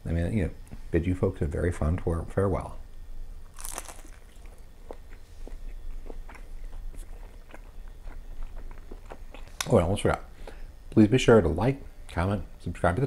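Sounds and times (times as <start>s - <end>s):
person chewing crunchy food: 3.4s - 9.7s.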